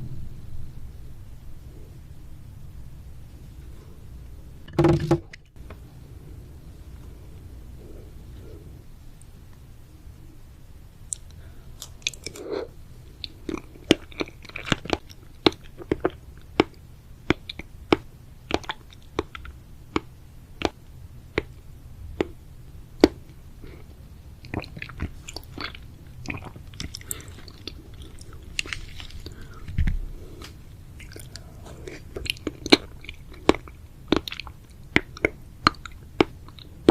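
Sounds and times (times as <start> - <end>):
chewing with wet mouth clicks: 11.1 - 12.5, 13.2 - 20.8, 24.4 - 29.7, 30.4 - 36.9.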